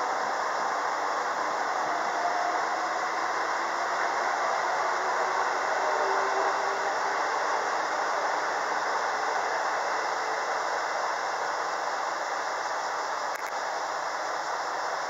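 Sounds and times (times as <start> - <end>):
electric train running: 0.0 - 15.0.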